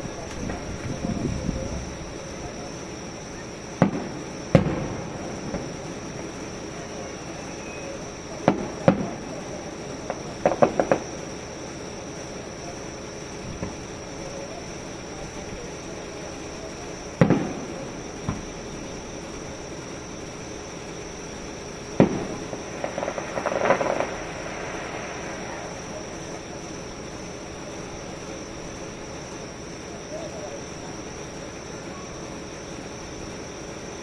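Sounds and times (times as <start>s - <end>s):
fireworks crackling pops: 0.0s - 30.5s
fireworks shell bursts booming: 3.7s - 11.4s, 17.1s - 19.2s, 21.6s - 26.6s.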